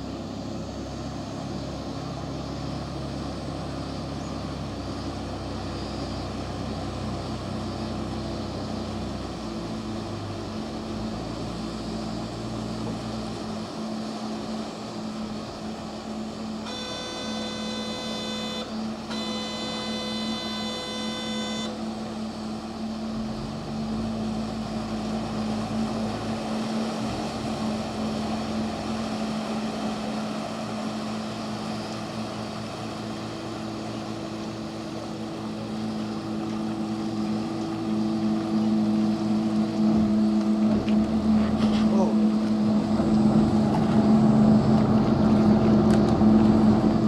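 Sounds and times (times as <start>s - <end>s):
boat engine humming: 0.0s - 47.0s
high steady tone: 16.6s - 21.8s.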